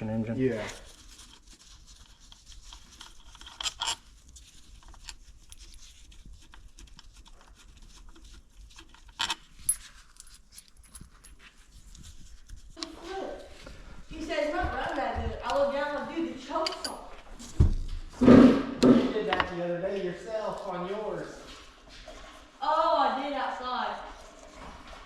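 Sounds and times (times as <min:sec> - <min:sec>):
light clicks and clinks: 0:16.6 - 0:17.2.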